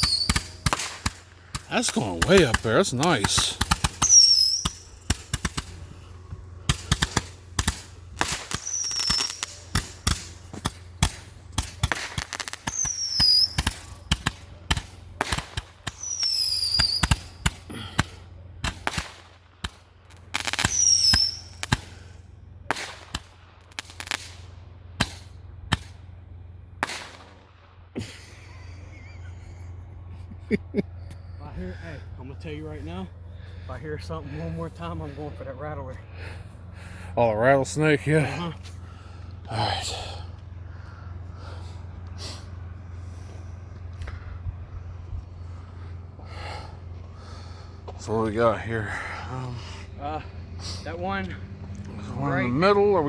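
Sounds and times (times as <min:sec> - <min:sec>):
falling firework whistles: 0:00.0 - 0:26.0
fireworks cracks and bangs: 0:00.0 - 0:26.1, 0:26.8 - 0:28.3.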